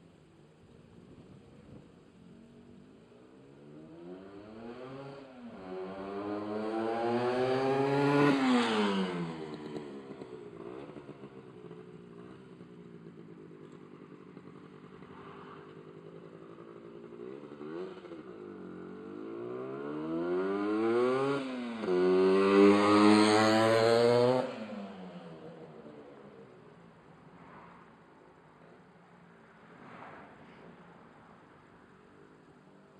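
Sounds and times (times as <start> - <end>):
two-stroke engine revving: 3.9 - 11.3, 17.0 - 24.9.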